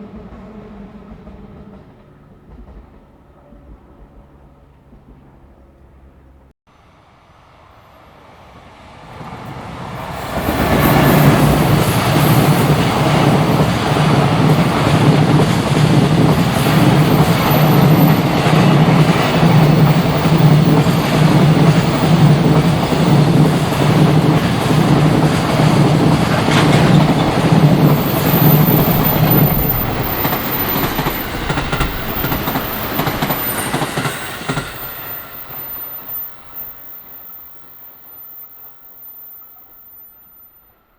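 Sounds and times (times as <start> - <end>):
freight train wheels rumbling on rail: 0.0 - 6.4, 7.1 - 37.7
thin high whine: 27.8 - 40.9.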